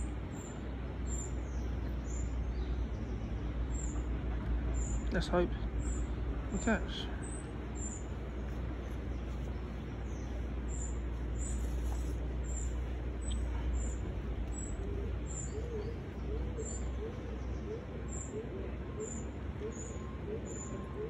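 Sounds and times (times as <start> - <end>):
steady low rumble: 0.0 - 18.3
bird chirping: 4.7 - 21.0
low cooing bird call: 7.1 - 21.0.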